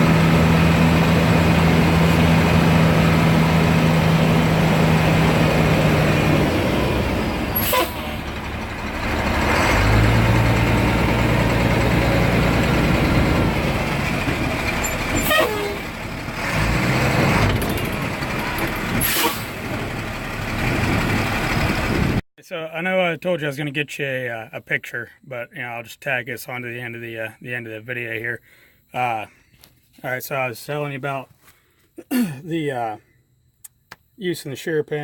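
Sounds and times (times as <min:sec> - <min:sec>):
heavy vehicle engine running: 0:00.0 - 0:22.2.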